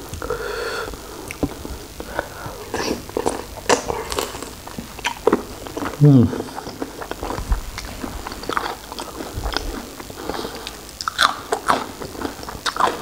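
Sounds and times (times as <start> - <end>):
mouth clicks and smacks: 1.2 - 1.7
wet chewing: 1.2 - 13.0.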